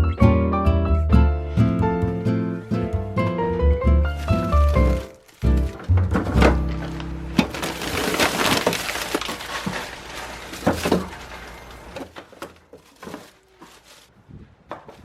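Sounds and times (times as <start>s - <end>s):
plastic packages clattering and crinkling: 4.0s - 14.1s.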